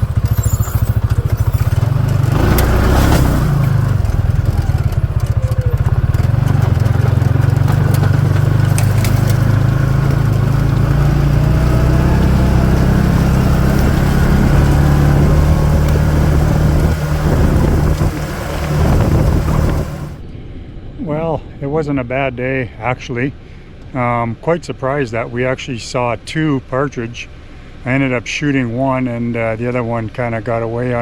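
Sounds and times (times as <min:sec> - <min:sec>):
clicks and rattles: 0:00.0 - 0:12.2
buggy engine running: 0:00.0 - 0:20.2.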